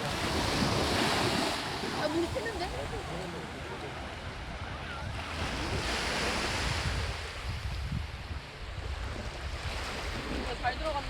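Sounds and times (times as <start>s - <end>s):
waves washing up a beach: 0.0s - 11.0s
wind rumble on microphone: 4.2s - 11.0s.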